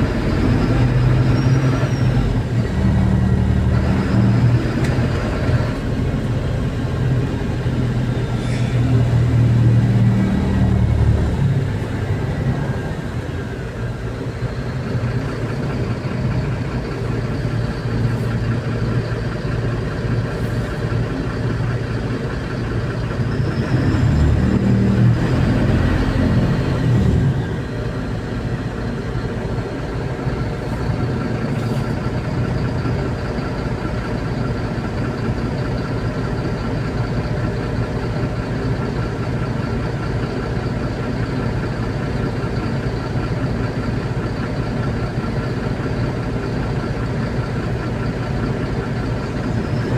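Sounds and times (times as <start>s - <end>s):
bus engine running: 0.0s - 49.9s.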